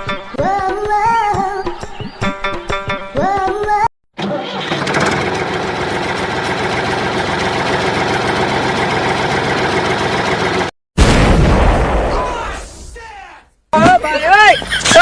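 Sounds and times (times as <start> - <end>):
engine idling with knocking: 4.6 - 10.7.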